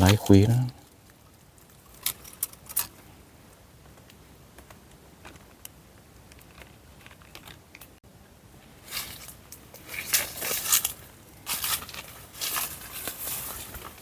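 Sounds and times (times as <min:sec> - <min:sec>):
dry leaves crackling: 0:08.8 - 0:14.0.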